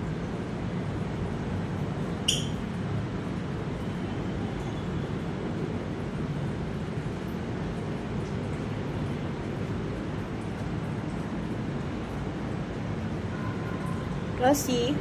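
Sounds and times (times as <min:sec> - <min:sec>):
sharp bird chirp: 0:02.3 - 0:02.6.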